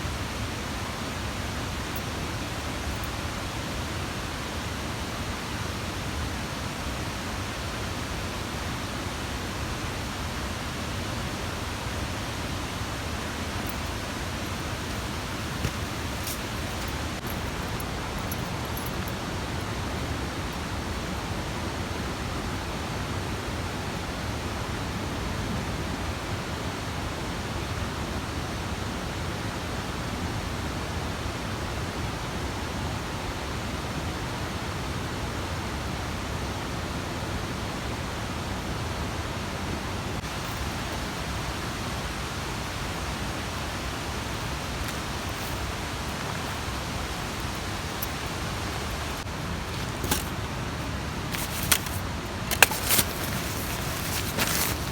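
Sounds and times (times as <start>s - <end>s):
mountain stream rushing: 0.0s - 23.3s, 40.1s - 54.9s.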